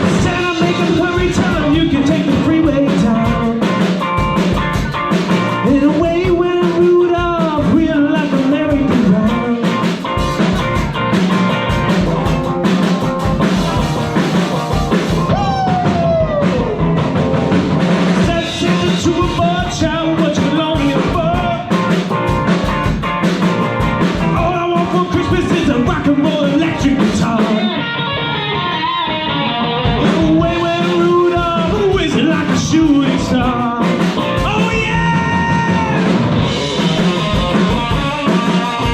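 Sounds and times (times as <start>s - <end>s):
person singing: 0.0s - 4.1s, 5.3s - 10.3s, 14.1s - 17.2s, 18.2s - 22.1s, 24.2s - 38.9s
live rock band playing: 0.0s - 38.9s.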